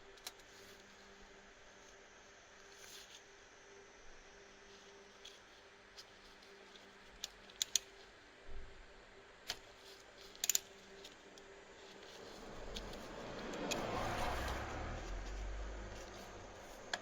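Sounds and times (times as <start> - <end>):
small tools clicking and tapping: 7.1 - 8.0, 10.2 - 11.5
rustling: 9.8 - 17.0.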